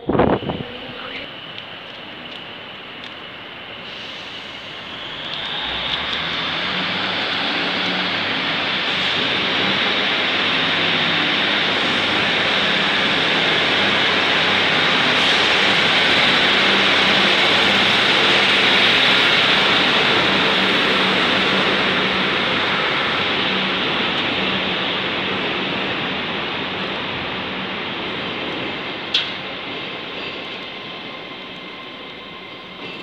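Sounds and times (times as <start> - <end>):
standing train equipment hum: 0.0 - 33.0.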